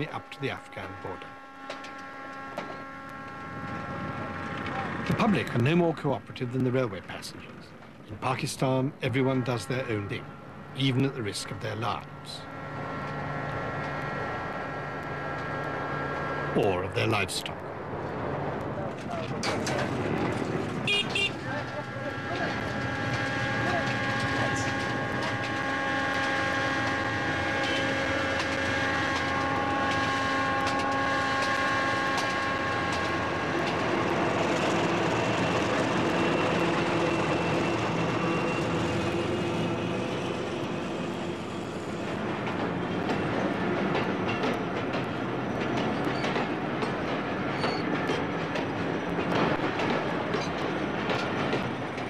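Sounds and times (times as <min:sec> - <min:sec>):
locomotive rumble: 0:00.0 - 0:52.0
wheels clattering over rail joints: 0:18.0 - 0:52.0.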